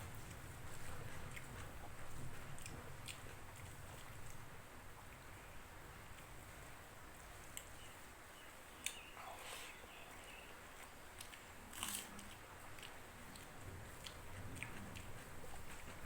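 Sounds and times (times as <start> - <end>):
person chewing food: 0.0 - 4.5, 8.8 - 16.0.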